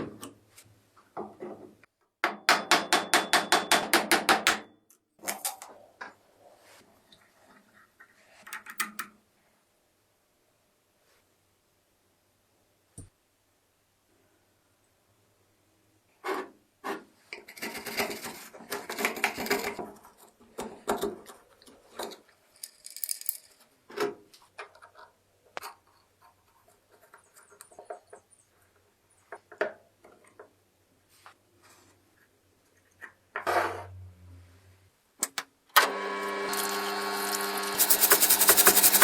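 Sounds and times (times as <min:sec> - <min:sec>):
small hard objects clicking: 0:22.6 - 0:23.6.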